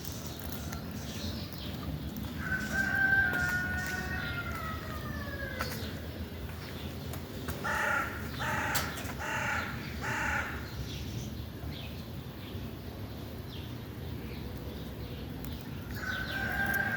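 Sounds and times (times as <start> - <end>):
small birds chirping faintly: 0.0 - 16.9
crow cawing: 2.4 - 5.7, 7.6 - 10.7
rooster crowing: 2.4 - 5.8, 16.0 - 16.9.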